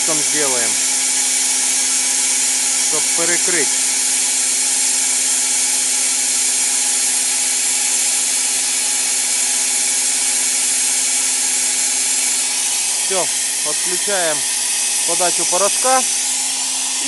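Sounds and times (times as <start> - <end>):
spray gun gas jet hissing: 0.0 - 5.4, 11.8 - 17.0.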